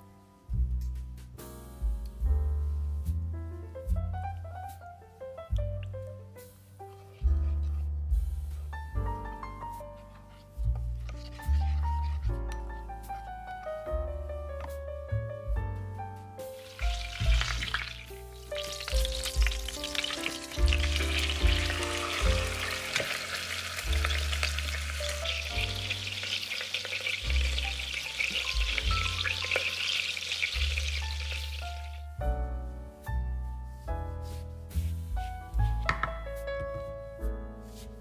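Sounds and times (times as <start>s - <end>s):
background music with bass: 0.0s - 38.0s
food sizzling in a pan: 16.6s - 32.0s.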